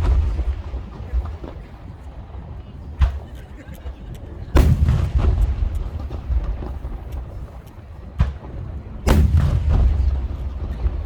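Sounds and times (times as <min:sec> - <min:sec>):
heavy boom rumbling: 0:00.0 - 0:01.8, 0:04.6 - 0:07.5, 0:08.2 - 0:11.0
small crackling pops: 0:03.0 - 0:09.3
fireworks shells bursting: 0:04.5 - 0:11.0.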